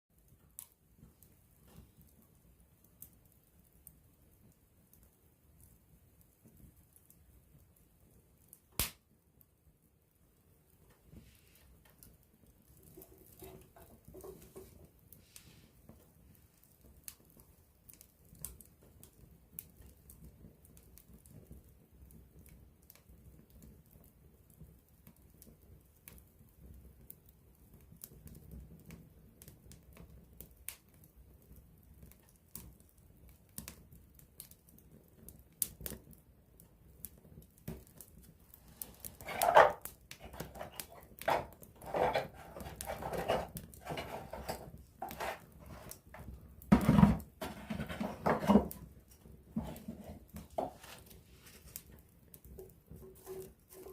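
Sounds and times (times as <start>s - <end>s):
wood fire crackling: 0.2s - 53.9s.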